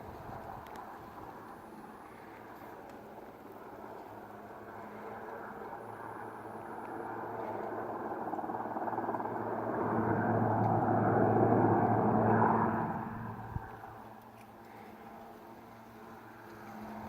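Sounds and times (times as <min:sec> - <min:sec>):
helicopter flying past: 0:00.0 - 0:17.0.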